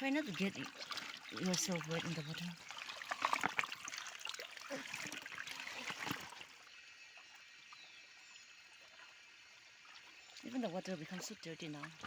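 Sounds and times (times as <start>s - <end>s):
water splashing: 0.0s - 6.6s
stream water trickling: 0.0s - 12.0s.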